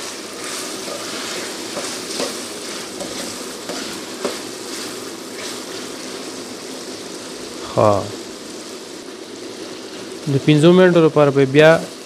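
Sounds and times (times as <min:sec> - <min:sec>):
chicken sizzling in hot oil: 0:00.0 - 0:12.0
spatula knocking and scraping pan: 0:00.4 - 0:05.6.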